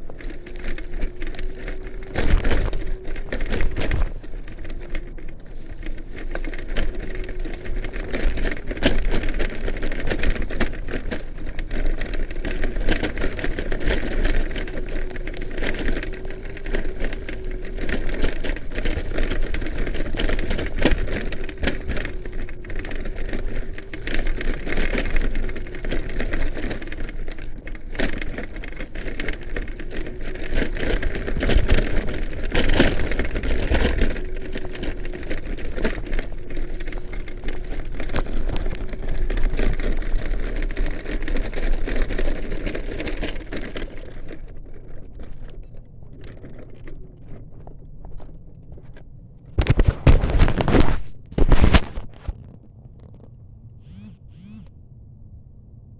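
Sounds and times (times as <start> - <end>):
electric scooter motor whine: 0.0 - 51.0, 53.7 - 55.1.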